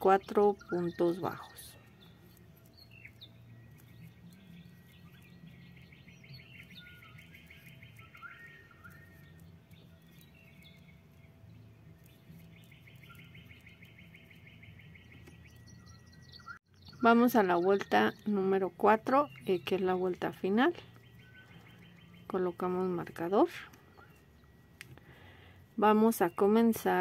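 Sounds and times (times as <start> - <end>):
bird chirping: 0.0 - 27.0.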